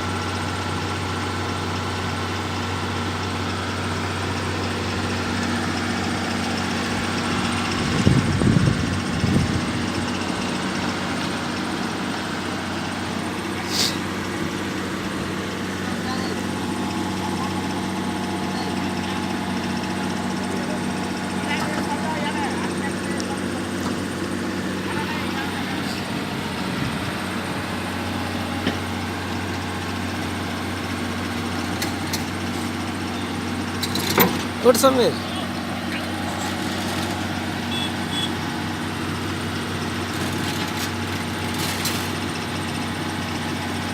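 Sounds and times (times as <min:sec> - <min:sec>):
diesel engine running: 0:00.0 - 0:43.9
short hiss: 0:13.6 - 0:14.0.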